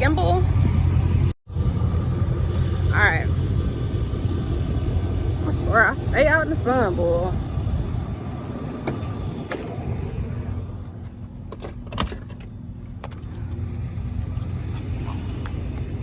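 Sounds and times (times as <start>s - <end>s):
car engine idling: 0.0s - 16.0s
handling clicks and knocks: 10.8s - 15.9s.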